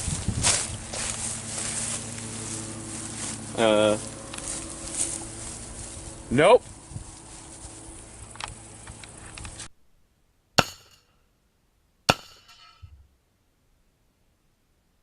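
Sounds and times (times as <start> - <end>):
sharp cracks with ringing: 10.6 - 11.2, 12.1 - 12.8.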